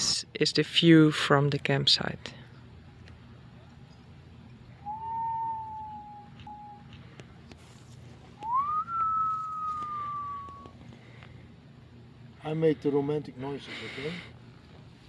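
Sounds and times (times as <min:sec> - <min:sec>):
person whistling long notes: 0:04.8 - 0:06.9, 0:08.4 - 0:10.7.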